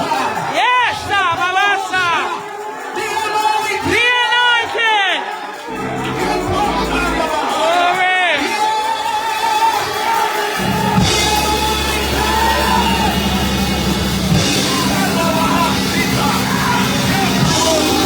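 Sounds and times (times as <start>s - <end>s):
cymbal crashes: 5.7s - 7.8s
live church band music: 5.7s - 18.0s.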